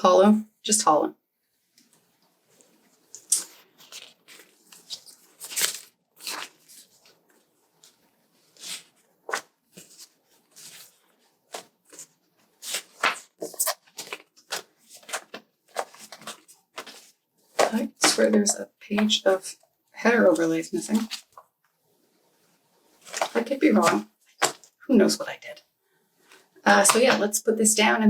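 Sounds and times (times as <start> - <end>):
paper sheets rustling: 2.6 - 19.5, 20.2 - 21.4, 23.0 - 24.7.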